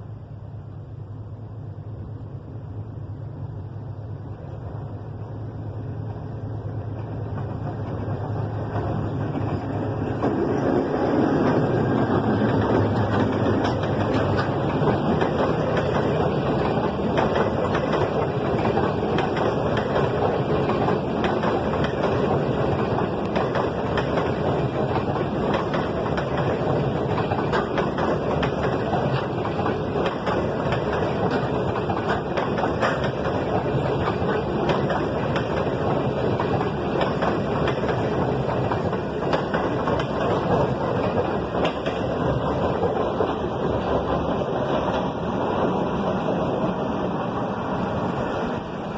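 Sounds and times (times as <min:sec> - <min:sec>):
diesel locomotive engine: 0:00.0 - 0:48.9
train rolling past: 0:00.0 - 0:48.9
wheel clicks over rail joints: 0:06.8 - 0:45.8.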